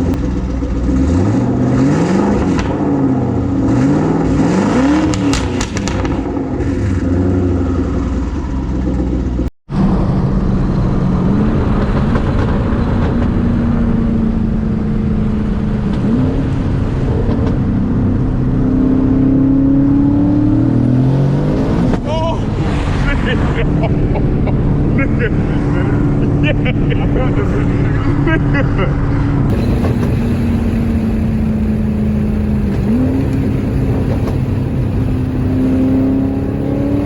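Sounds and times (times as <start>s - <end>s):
car engine revving: 0.0s - 26.5s, 29.1s - 37.0s.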